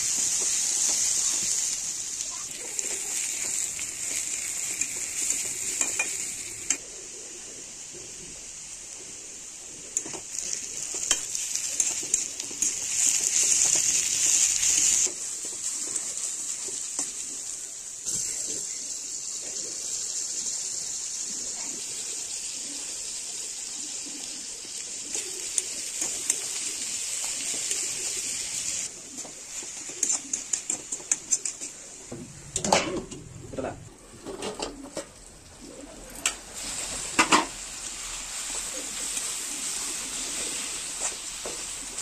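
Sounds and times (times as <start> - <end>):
onions sizzling in oil: 0.0 - 32.8, 35.6 - 42.0.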